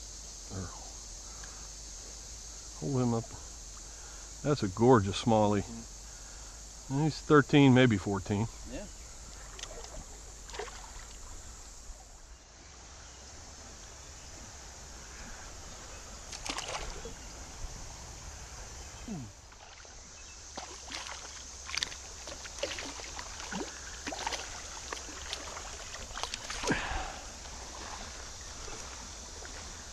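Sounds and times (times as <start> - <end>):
steady high hiss: 0.0 - 29.9
creek water splashing: 7.9 - 29.9.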